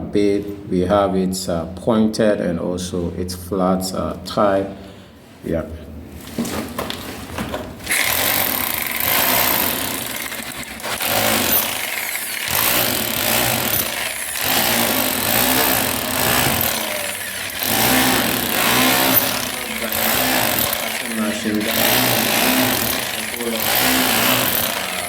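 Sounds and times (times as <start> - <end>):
rotary hammer drill chiseling wall: 7.9 - 25.0.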